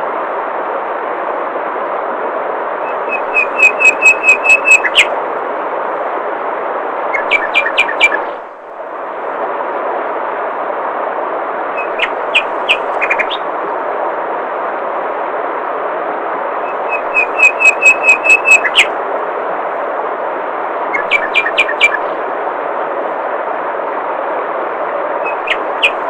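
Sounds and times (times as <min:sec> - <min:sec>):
bird chirping: 0:02.9 - 0:05.1, 0:07.1 - 0:08.4, 0:11.8 - 0:13.4, 0:16.7 - 0:18.9, 0:20.9 - 0:22.2, 0:25.2 - 0:26.0.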